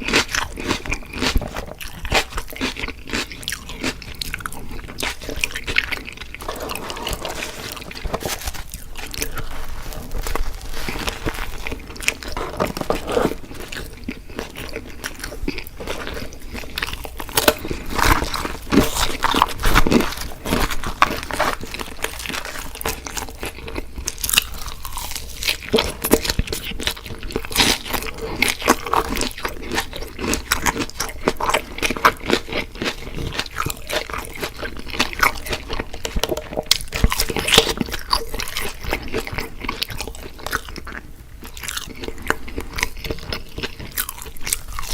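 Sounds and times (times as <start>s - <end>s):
wet chewing: 0.0s - 44.9s.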